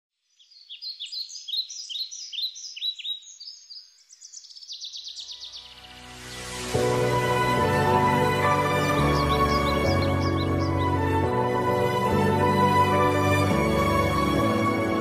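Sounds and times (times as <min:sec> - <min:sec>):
small birds chirping: 0:00.1 - 0:06.5, 0:08.5 - 0:11.3
bird trilling: 0:00.7 - 0:05.8, 0:09.1 - 0:11.0
soft music: 0:05.1 - 0:15.0.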